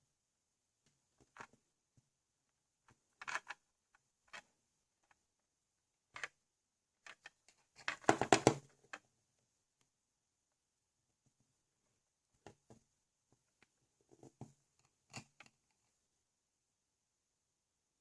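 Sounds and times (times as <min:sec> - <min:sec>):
plastic toy bricks clicking: 0:03.1 - 0:03.6.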